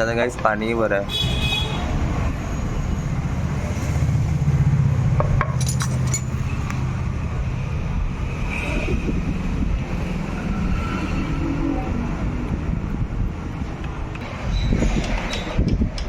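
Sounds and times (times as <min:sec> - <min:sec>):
road vehicles passing: 0:00.0 - 0:16.0
short metallic clinks: 0:05.4 - 0:06.4.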